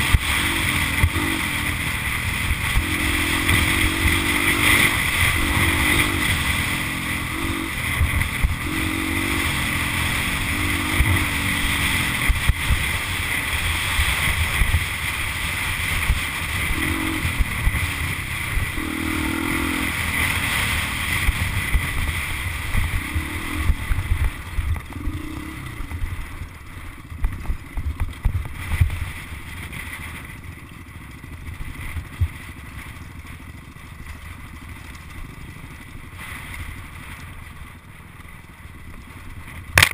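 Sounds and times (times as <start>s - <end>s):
dirt bike engine revving: 0.0s - 27.7s.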